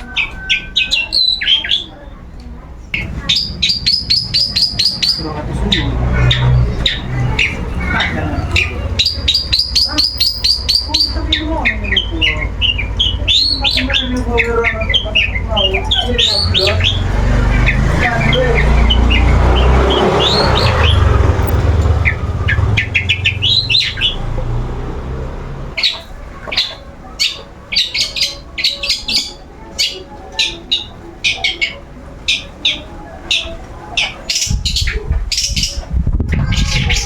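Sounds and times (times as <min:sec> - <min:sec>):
bird calling sharp high notes: 0:02.9 - 0:24.8.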